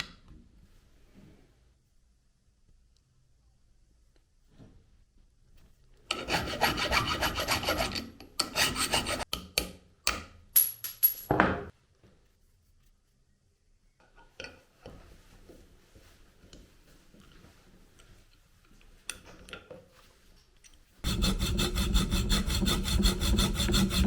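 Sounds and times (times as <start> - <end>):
hand tool scraping hard surface: 6.1 - 9.3, 21.0 - 24.0.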